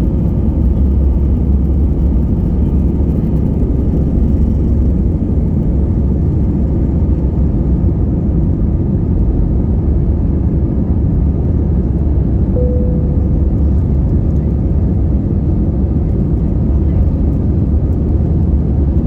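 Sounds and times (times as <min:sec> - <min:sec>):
airplane engines rumbling in cabin: 0:00.0 - 0:19.0
short single tone: 0:12.5 - 0:14.1.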